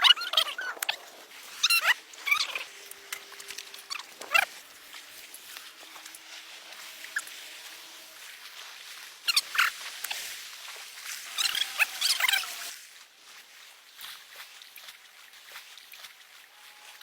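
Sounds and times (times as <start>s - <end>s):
high-pitched animal squeals: 0.0s - 4.6s, 9.2s - 9.8s, 11.3s - 12.7s.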